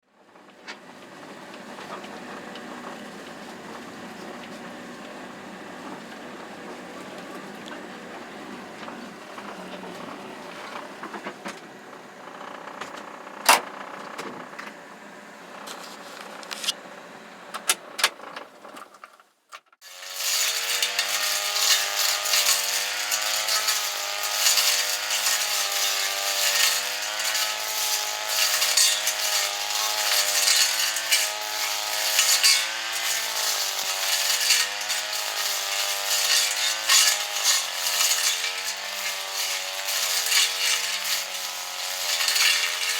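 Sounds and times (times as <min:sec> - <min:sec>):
two-stroke engine revving: 0:19.8 - 0:42.9.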